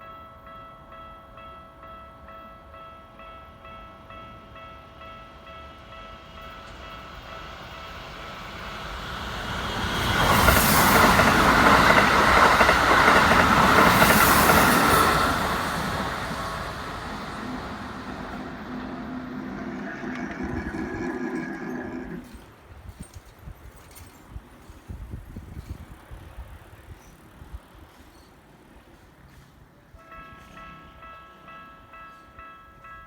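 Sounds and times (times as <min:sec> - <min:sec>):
electric train passing: 0:00.9 - 0:23.0
level crossing warning bell: 0:15.1 - 0:22.4, 0:30.0 - 0:33.0.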